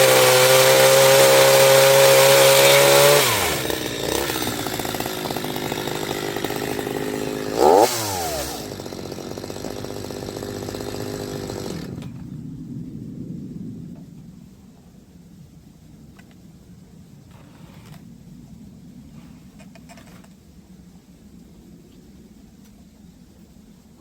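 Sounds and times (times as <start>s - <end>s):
chainsaw engine revving and idling: 0.0s - 12.2s.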